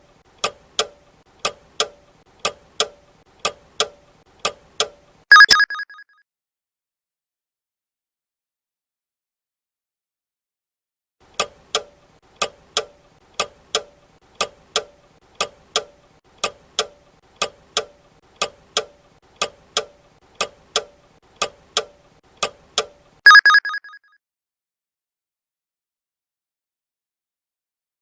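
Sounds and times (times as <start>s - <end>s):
ringing chime: 23.3s - 23.9s.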